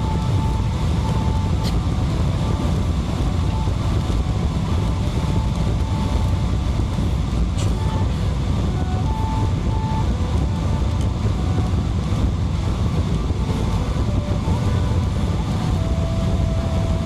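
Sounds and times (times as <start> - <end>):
airliner cabin roar in flight: 0.0 - 17.0.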